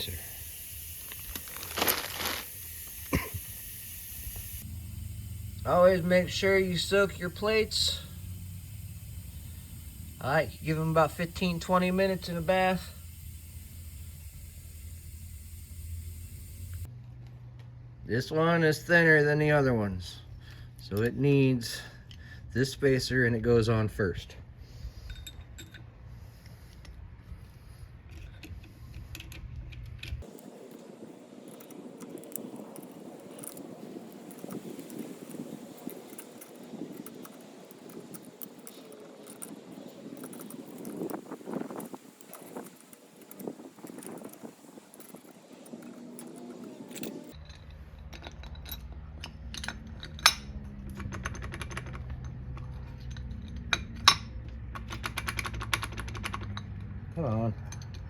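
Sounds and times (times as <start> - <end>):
small metal parts clinking: 0.0 - 16.9, 28.0 - 56.8
low hum: 0.0 - 18.0
metallic clicks of clutch plates: 4.6 - 16.9, 28.0 - 58.0.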